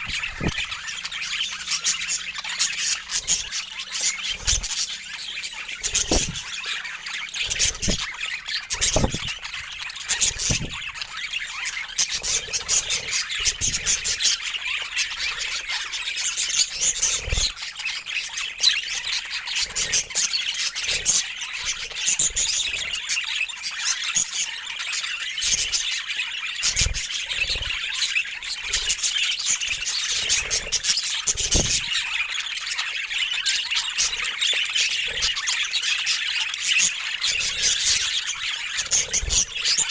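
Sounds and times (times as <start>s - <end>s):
low thumps: 0.0s - 0.6s, 6.0s - 6.4s, 7.6s - 8.0s, 8.8s - 9.3s, 10.4s - 10.8s
budgerigars chattering and squawking: 0.0s - 39.9s.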